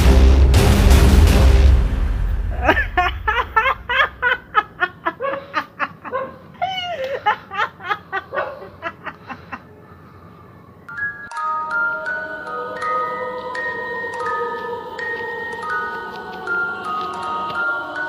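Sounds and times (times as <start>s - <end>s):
background music: 0.0s - 4.4s, 10.9s - 18.0s
man laughing maniacally: 2.4s - 9.8s.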